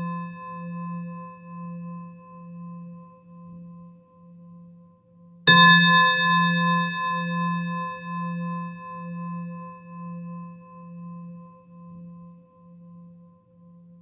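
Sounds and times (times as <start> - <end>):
singing bowl ringing: 0.0 - 2.8, 5.5 - 11.6.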